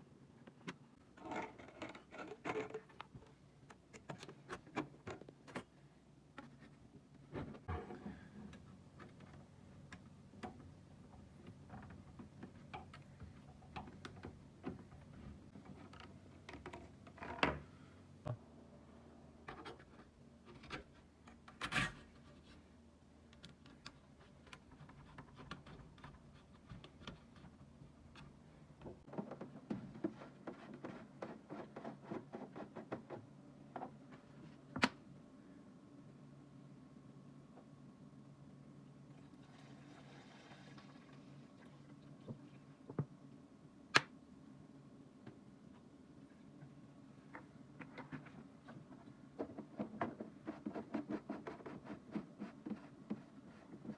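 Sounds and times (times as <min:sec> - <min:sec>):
faint steady hum: 0:00.0 - 0:53.9.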